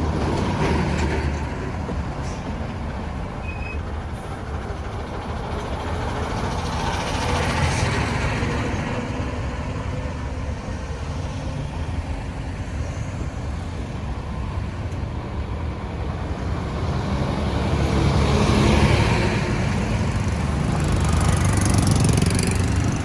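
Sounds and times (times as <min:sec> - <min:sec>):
traffic rumble and tyre noise: 0:00.0 - 0:23.0
vehicle passing: 0:16.1 - 0:23.0.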